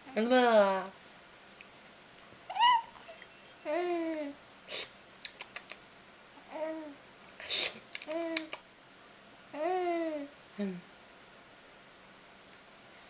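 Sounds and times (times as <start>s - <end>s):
baby babbling: 2.5s - 4.4s, 6.4s - 7.0s, 8.1s - 8.5s, 9.6s - 10.3s.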